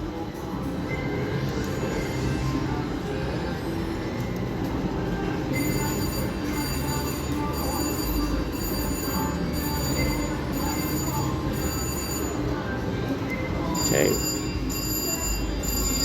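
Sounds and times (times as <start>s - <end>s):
electronic bell ringing: 5.4s - 16.0s
slot machine din: 5.6s - 12.5s, 13.8s - 16.0s.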